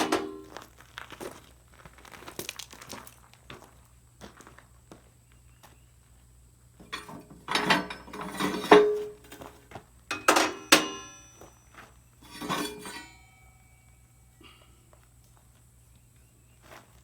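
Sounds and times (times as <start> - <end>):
metal objects clanking: 0.0 - 0.5, 6.8 - 9.5, 10.1 - 14.1.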